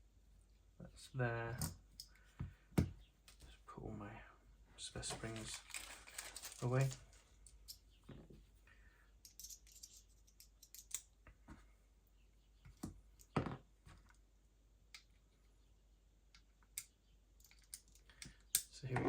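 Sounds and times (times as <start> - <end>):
small parts and tools clicking: 5.1 - 7.9, 9.2 - 11.2, 16.3 - 19.0.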